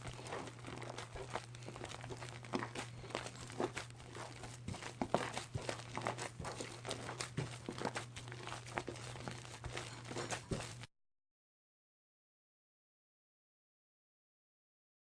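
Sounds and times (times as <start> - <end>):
foam crackling and popping: 0.0 - 10.9.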